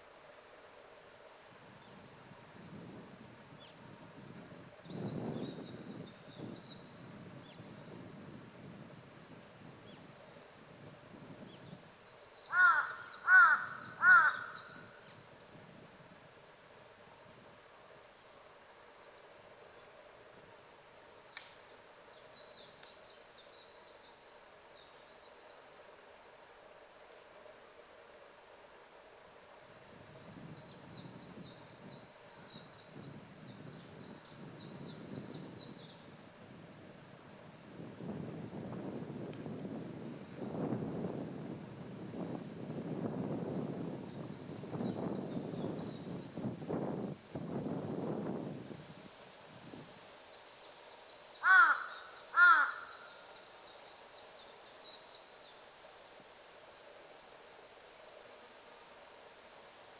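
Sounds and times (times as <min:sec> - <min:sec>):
low wind rumble: 0:00.0 - 0:59.9
small bird calling: 0:12.4 - 0:15.2, 0:51.3 - 0:53.5
crow cawing harshly: 0:12.5 - 0:14.7, 0:51.4 - 0:53.1.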